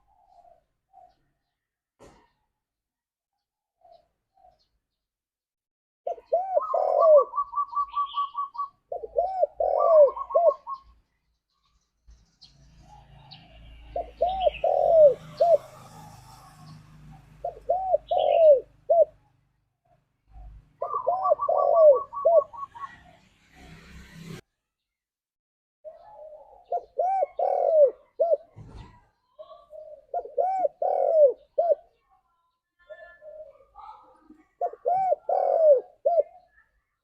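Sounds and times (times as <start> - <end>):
dove cooing: 0.0 - 1.3, 6.1 - 11.0, 13.9 - 19.3, 20.3 - 23.2, 25.9 - 32.0, 33.2 - 36.6.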